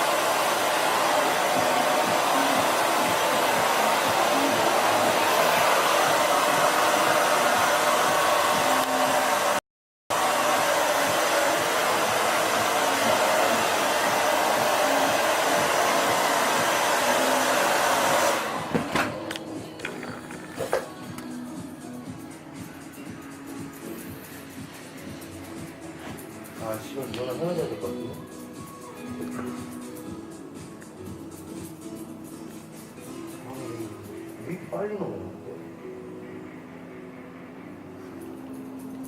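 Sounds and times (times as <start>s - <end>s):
hair dryer blowing: 0.0s - 30.8s.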